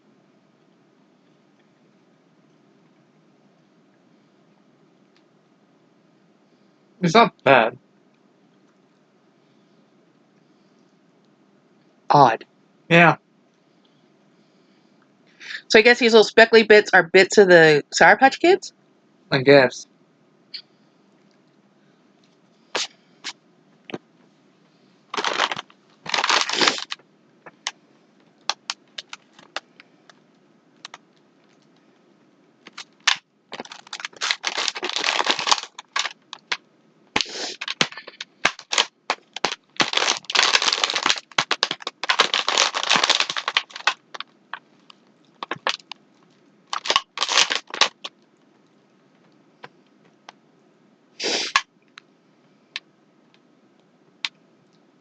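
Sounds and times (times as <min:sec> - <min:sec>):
cookies crunching while chewed: 0:25.1 - 0:30.2, 0:32.7 - 0:36.6, 0:37.2 - 0:48.9.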